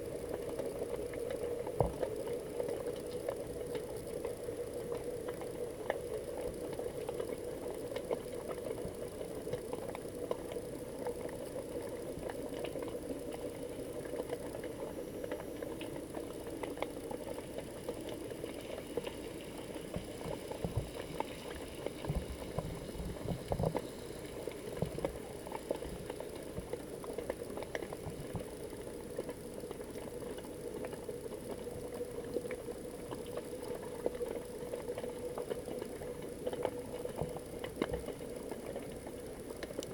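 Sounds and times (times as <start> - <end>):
crackling clicks: 0.0 - 39.9
muffled underwater hum: 0.0 - 39.9.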